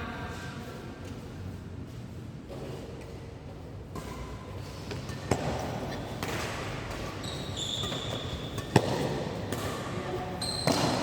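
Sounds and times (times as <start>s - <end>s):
racket striking shuttlecock: 4.9s - 10.0s, 10.6s - 11.0s
short high squeaks: 7.2s - 8.4s.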